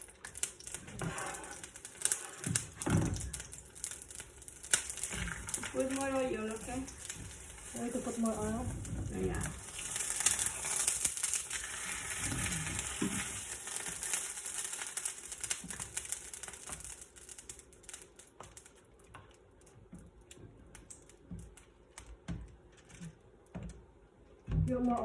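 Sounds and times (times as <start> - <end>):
oil sizzling in a frying pan: 0.0 - 18.9.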